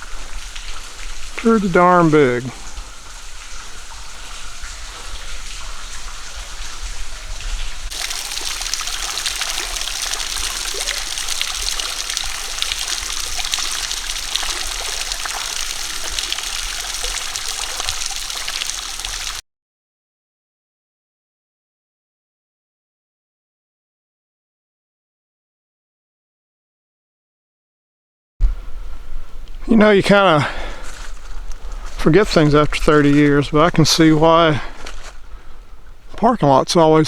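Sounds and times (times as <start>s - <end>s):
running water: 0.0s - 19.4s, 28.6s - 37.0s.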